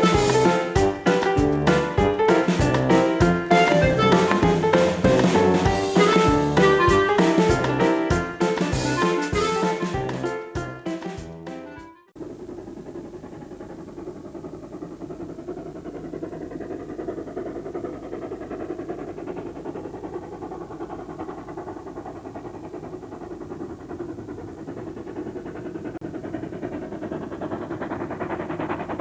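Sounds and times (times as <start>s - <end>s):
steam locomotive rumbling: 0.0s - 29.0s.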